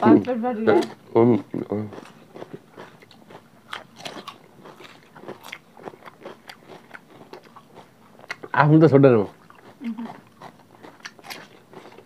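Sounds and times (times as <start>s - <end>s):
mouths chewing food: 0.0s - 12.0s
crunching raw cucumber: 9.3s - 12.0s.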